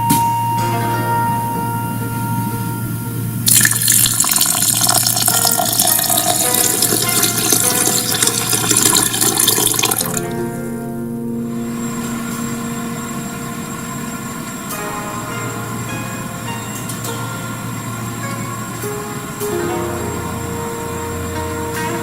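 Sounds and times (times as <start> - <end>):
background music: 0.0 - 22.0
tap water running into sink: 3.5 - 10.2.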